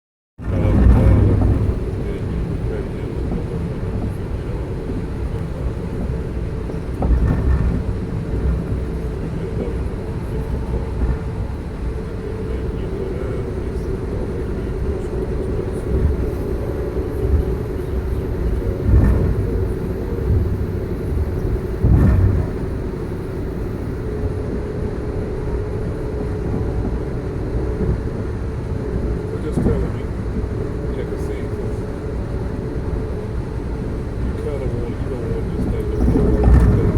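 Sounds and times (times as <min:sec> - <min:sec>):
train jolts: 0:00.4 - 0:11.6, 0:12.3 - 0:24.4, 0:34.2 - 0:36.9
train rumbling: 0:00.4 - 0:36.9.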